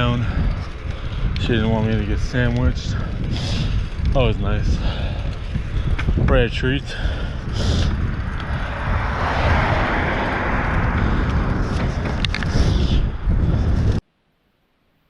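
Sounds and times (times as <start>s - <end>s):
road and traffic noise: 0.0s - 14.0s
wind rumbling on microphone: 0.0s - 14.1s.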